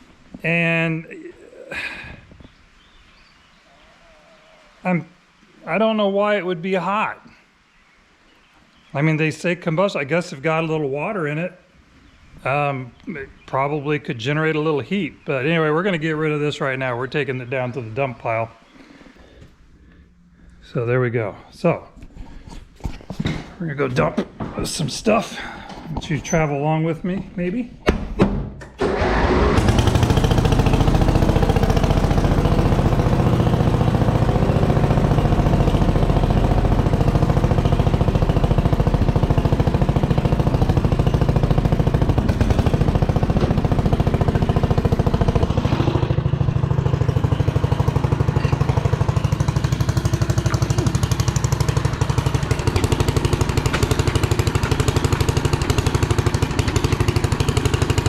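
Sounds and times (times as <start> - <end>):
vehicle engine running: 29.0 - 58.0.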